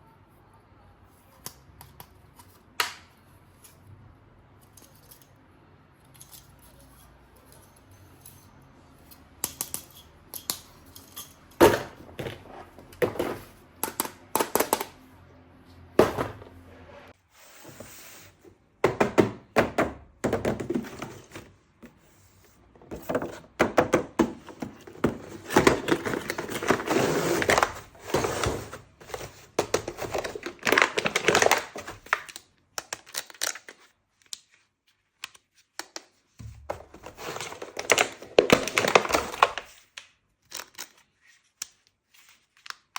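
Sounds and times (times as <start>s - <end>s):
packaging rustling and crinkling: 24.5s - 34.7s, 36.5s - 42.7s.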